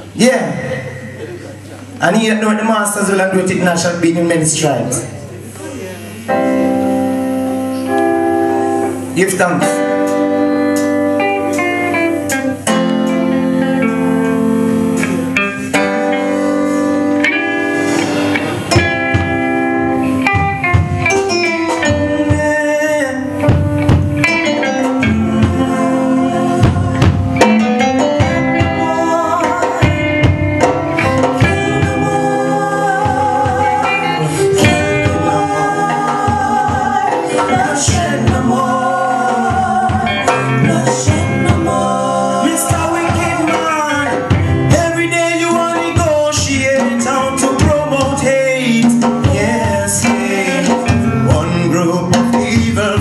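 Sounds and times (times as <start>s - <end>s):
live band playing: 0.0s - 53.0s
person singing: 21.0s - 53.0s.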